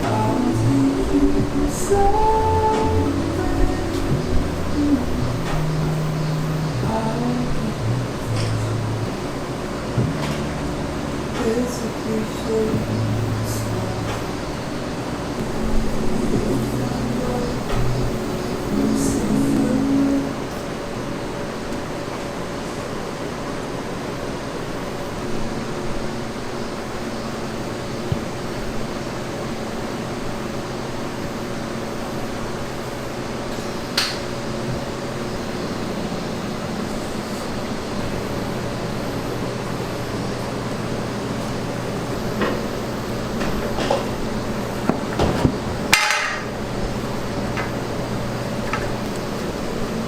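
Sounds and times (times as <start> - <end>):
mechanical hum: 0.0 - 50.0.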